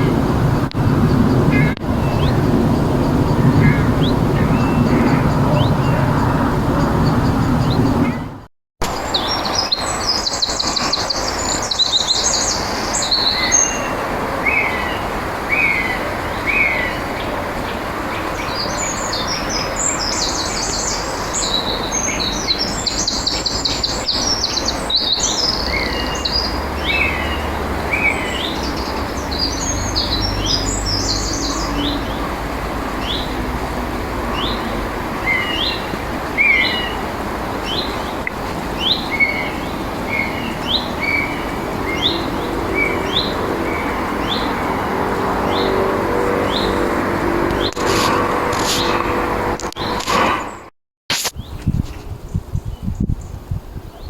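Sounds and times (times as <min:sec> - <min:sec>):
songbirds singing: 0:00.0 - 0:50.7
outdoor background hiss: 0:08.8 - 0:49.8.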